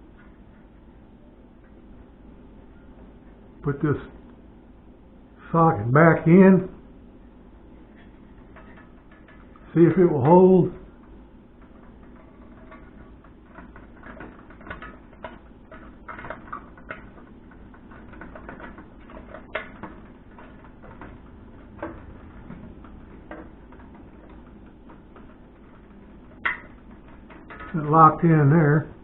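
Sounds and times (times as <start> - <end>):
plastic clicks and scrapes: 11.0 - 27.8.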